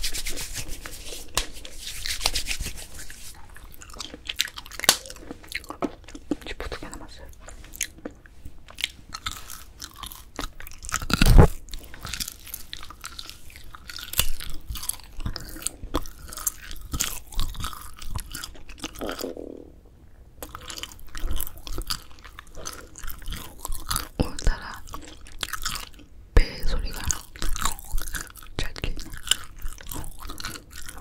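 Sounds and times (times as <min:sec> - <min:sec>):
chewing dried fish crackling: 0:03.4 - 0:19.4, 0:20.4 - 0:31.0.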